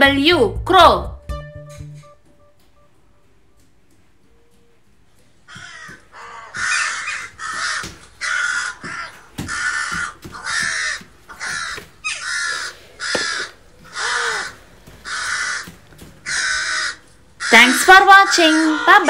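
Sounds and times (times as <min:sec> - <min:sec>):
crow cawing: 0:05.5 - 0:19.0.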